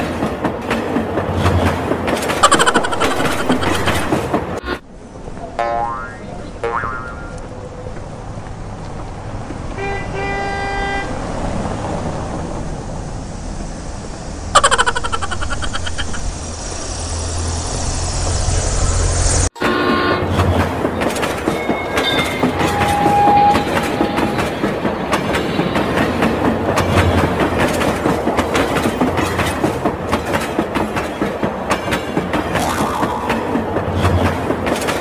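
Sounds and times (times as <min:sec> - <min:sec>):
train wheels clacking over rail joints: 0:00.0 - 0:04.6, 0:19.6 - 0:35.0.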